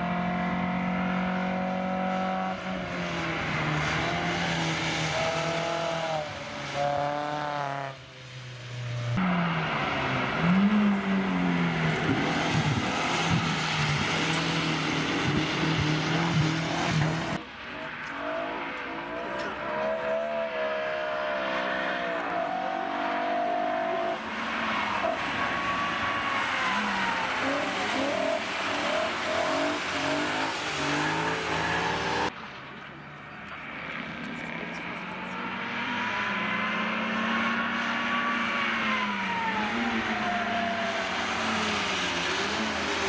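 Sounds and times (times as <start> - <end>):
car engines revving: 0.0 - 43.0
tyres hissing on wet asphalt: 9.7 - 19.7, 20.5 - 32.6, 39.6 - 43.0.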